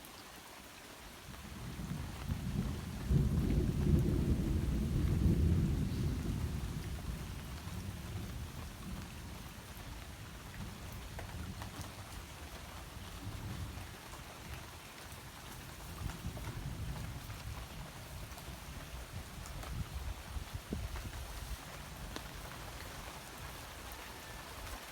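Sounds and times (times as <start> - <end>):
steady rain falling: 0.0 - 24.9
thunder rumbling: 1.6 - 9.8.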